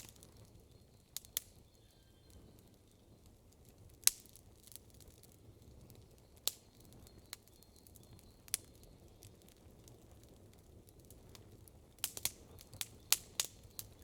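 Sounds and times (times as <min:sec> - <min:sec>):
sharp pops of fire: 0:00.0 - 0:00.4, 0:04.0 - 0:05.2, 0:11.1 - 0:14.0
campfire crackling: 0:00.0 - 0:14.0.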